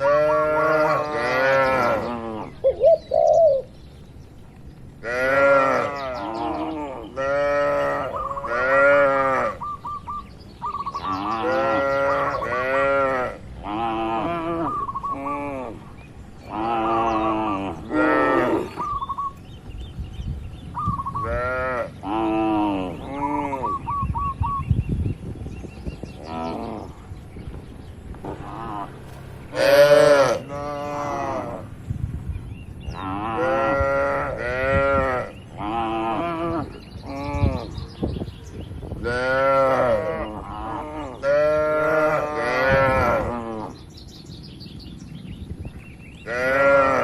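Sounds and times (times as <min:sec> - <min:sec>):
cattle mooing: 0:00.0 - 0:02.5, 0:05.0 - 0:09.6, 0:16.5 - 0:18.8, 0:28.3 - 0:31.7, 0:39.0 - 0:43.8, 0:46.3 - 0:47.0.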